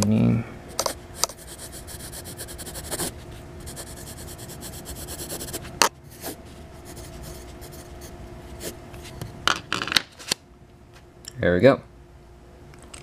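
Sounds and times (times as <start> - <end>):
pencil scratching on paper: 0.8 - 8.8.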